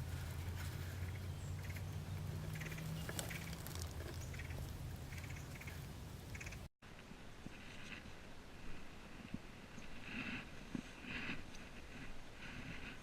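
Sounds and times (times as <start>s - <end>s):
birds calling in rough notes: 0.8s - 6.7s.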